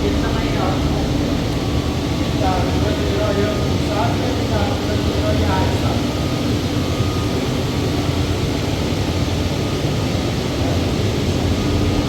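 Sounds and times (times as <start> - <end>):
engine droning: 0.0 - 9.2.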